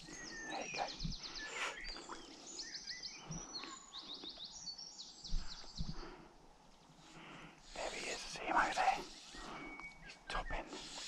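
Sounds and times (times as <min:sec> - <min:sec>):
songbirds singing: 0:00.0 - 0:11.0
microphone handling bumps and rustle: 0:05.3 - 0:06.0.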